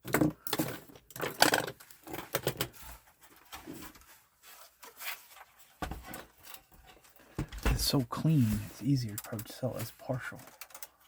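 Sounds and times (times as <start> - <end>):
plastic parts clicking and tapping: 0.0 - 2.8, 5.8 - 11.0.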